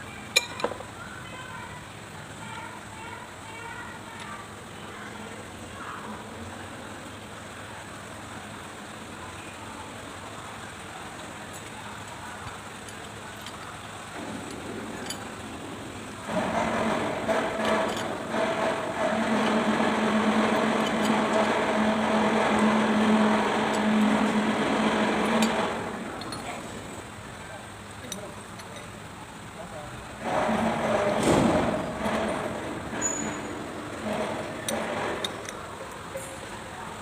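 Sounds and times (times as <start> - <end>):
machine humming: 14.1 - 27.4.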